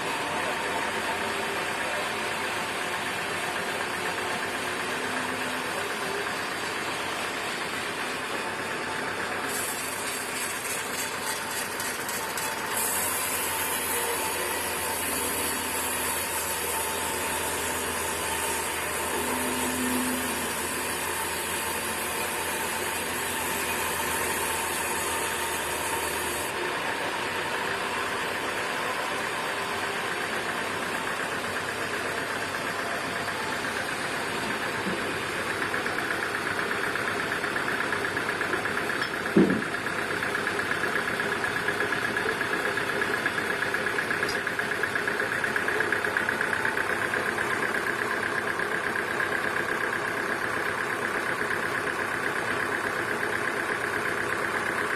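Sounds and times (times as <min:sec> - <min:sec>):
sawmill machinery drone: 0:00.0 - 0:54.9
rhythmic rattle: 0:10.0 - 0:12.7.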